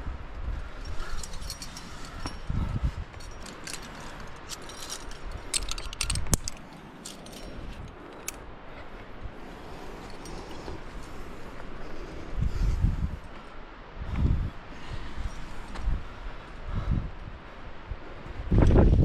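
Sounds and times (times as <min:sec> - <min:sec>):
metal climbing gear clinking: 0:00.6 - 0:11.7.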